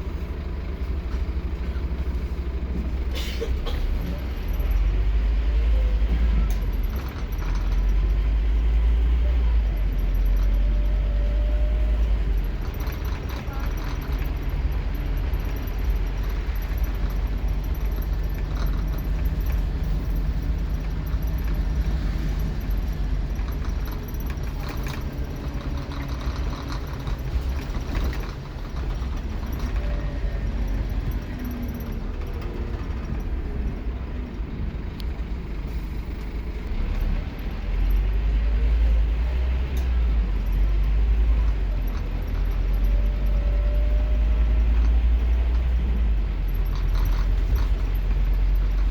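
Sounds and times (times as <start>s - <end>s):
bus engine drone: 0.0s - 48.9s
fittings rattling: 12.2s - 33.8s.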